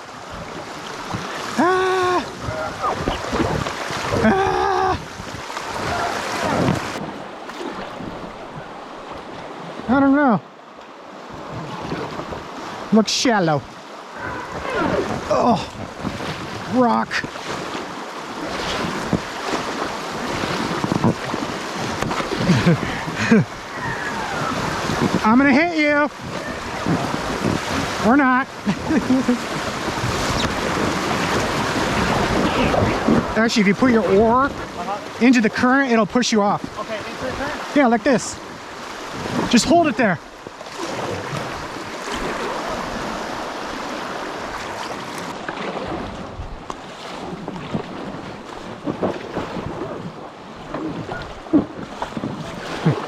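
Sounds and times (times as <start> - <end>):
river water rushing: 0.0 - 53.0
raft bumping against rocks: 20.6 - 23.4.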